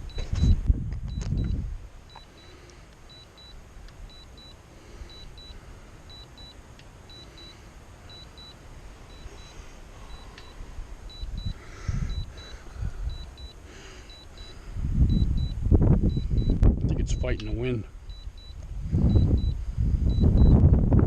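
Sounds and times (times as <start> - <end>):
wind rumbling on microphone: 0.0 - 2.1, 10.1 - 13.5, 14.4 - 21.0
remote controller beeping: 0.0 - 20.6.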